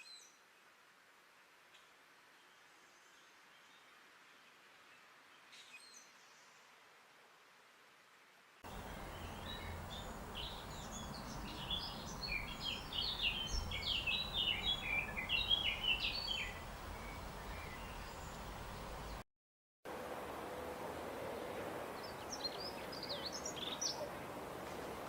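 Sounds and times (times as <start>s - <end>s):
songbird chirping: 0.0s - 6.8s, 8.6s - 19.2s, 21.4s - 25.0s
steady background noise: 8.7s - 19.2s.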